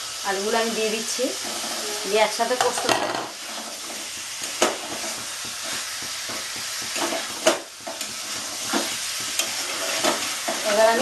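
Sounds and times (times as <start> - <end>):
food sizzling in a pan: 0.0 - 11.0
metal spatula scraping a pan: 1.3 - 11.0
spatula knocking on pan: 4.0 - 10.6.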